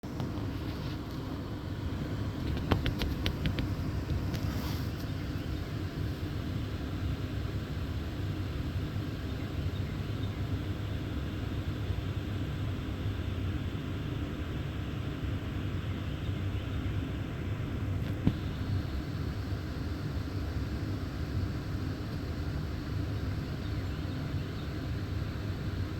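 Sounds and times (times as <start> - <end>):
steady low rumble: 0.0 - 14.6
woodpecker tapping on wood: 2.4 - 4.4.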